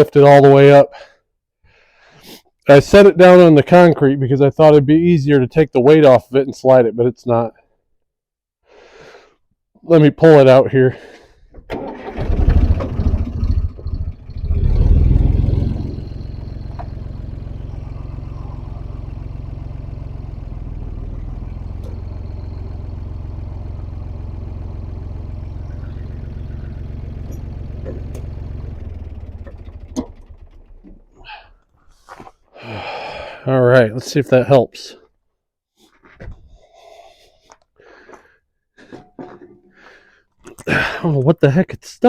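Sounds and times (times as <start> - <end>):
tractor engine revving: 11.7 - 31.5.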